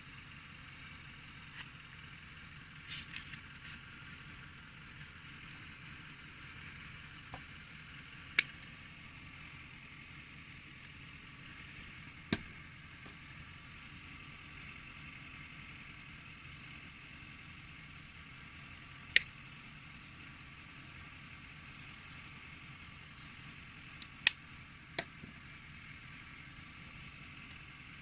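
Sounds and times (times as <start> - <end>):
campfire hissing: 0.0 - 28.0
campfire popping: 1.7 - 17.6.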